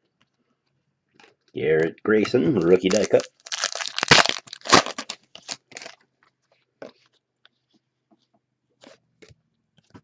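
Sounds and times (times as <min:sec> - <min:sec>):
trading cards clicking and rustling: 0:01.8 - 0:06.0.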